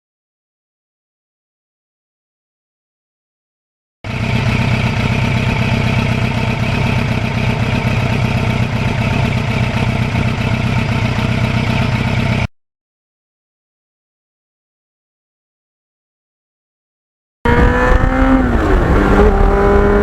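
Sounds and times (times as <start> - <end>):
motorcycle engine running: 4.1 - 12.5, 17.5 - 20.0.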